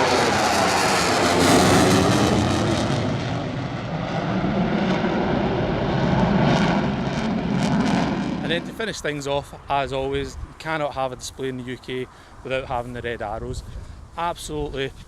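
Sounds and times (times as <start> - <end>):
aircraft flying overhead: 0.0 - 9.7.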